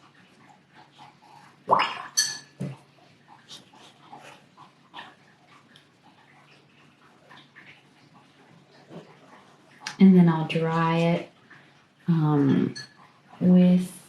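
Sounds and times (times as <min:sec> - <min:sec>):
faint clicks and taps: 0:04.6 - 0:10.0.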